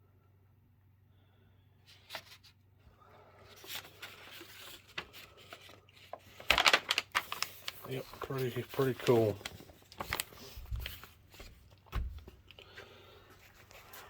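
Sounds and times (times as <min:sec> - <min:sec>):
handling rustling and clicks: 0:03.6 - 0:12.6.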